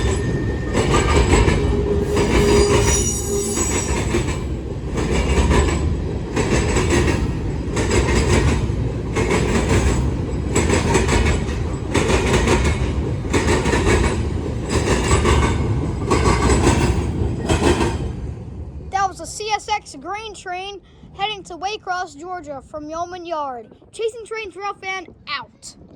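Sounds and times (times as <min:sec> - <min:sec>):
freight train rumble: 0:00.0 - 0:21.4
wheels clattering over rail joints: 0:03.8 - 0:18.2.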